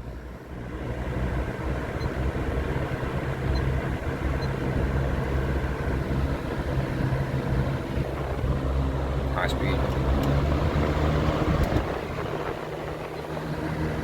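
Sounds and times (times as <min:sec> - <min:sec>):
box fan running: 0:00.0 - 0:14.0.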